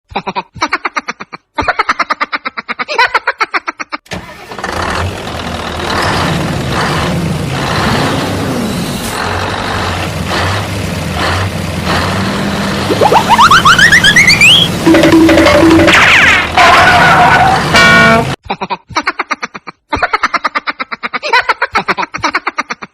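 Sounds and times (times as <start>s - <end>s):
engine cranking and starting: 4.0s - 12.3s.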